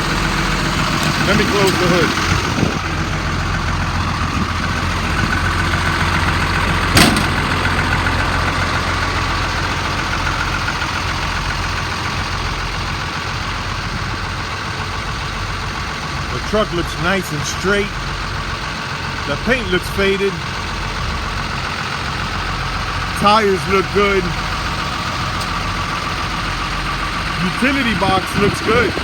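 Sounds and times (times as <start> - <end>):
diesel engine idling: 0.0 - 29.0
hood slamming shut: 0.8 - 2.7, 6.7 - 8.6.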